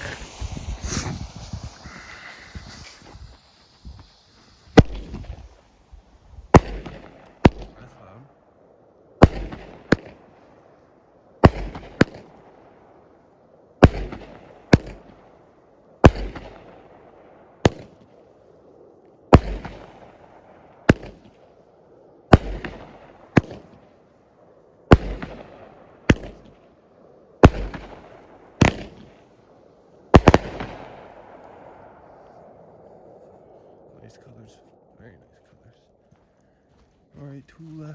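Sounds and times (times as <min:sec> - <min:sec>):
firework launch thumps: 0:00.0 - 0:05.6, 0:27.4 - 0:29.2
firework shells bursting: 0:00.0 - 0:07.9, 0:09.2 - 0:10.6, 0:11.4 - 0:12.7, 0:13.8 - 0:15.4, 0:16.0 - 0:18.2, 0:19.3 - 0:21.4, 0:22.3 - 0:23.8, 0:24.8 - 0:26.6, 0:27.4 - 0:32.1.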